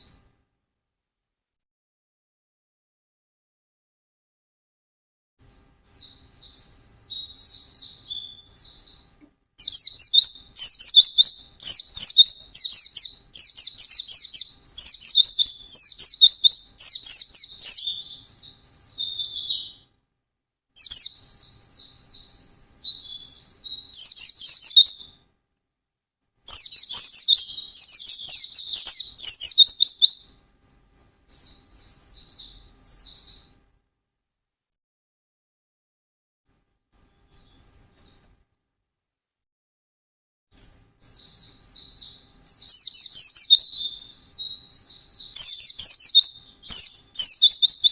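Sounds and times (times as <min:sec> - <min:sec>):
bird twittering song: 0:05.4 - 0:19.9, 0:20.8 - 0:25.2, 0:26.4 - 0:33.6, 0:36.6 - 0:38.3, 0:40.6 - 0:47.9.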